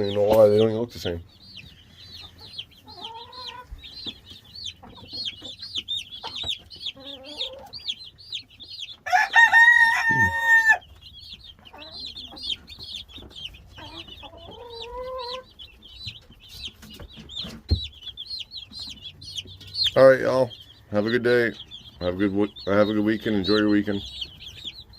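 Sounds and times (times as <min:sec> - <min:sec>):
chickens clucking: 0:00.0 - 0:24.9
chicks peeping: 0:00.0 - 0:24.9
chicken drawn-out call: 0:06.2 - 0:07.8, 0:09.0 - 0:10.9, 0:13.8 - 0:15.5.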